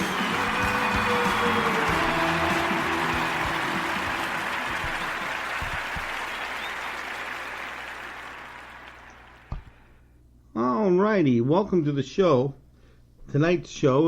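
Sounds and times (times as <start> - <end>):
music: 0.0 - 8.0
crowd applause: 0.0 - 9.6.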